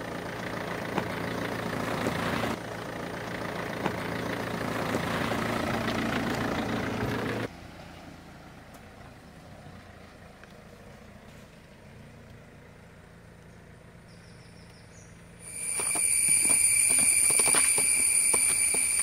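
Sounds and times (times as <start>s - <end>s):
insects chorus with shrill tones: 14.1s - 19.0s.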